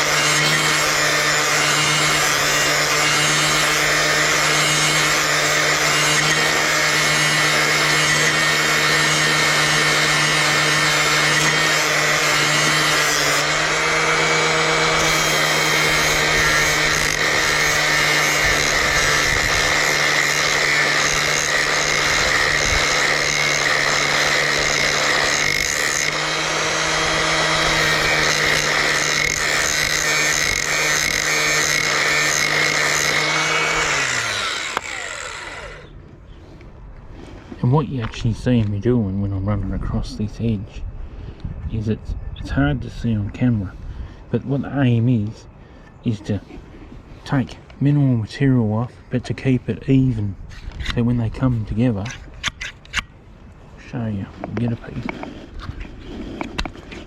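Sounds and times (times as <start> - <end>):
angle grinder grinding metal: 0.0 - 36.0.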